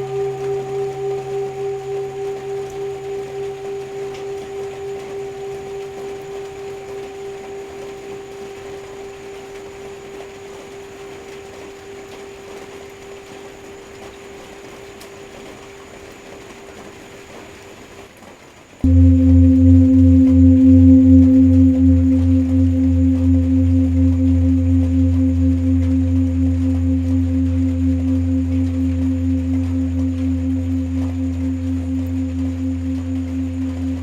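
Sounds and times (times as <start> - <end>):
loud low singing bowl strike: 0.0 - 10.3, 18.9 - 34.0
singing bowl ringing: 0.0 - 13.0, 18.9 - 34.0
rain hissing: 0.0 - 14.3, 18.9 - 34.0.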